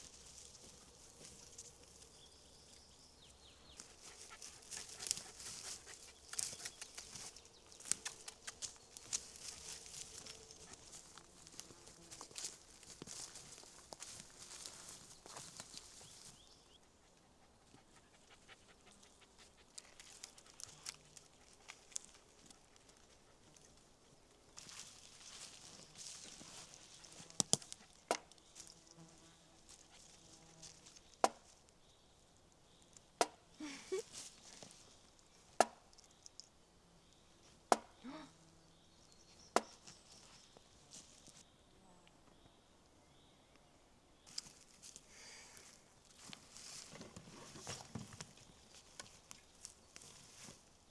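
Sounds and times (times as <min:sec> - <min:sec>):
soft rustle: 0:03.7 - 0:16.6, 0:24.5 - 0:31.1, 0:39.8 - 0:41.5, 0:44.3 - 0:50.9.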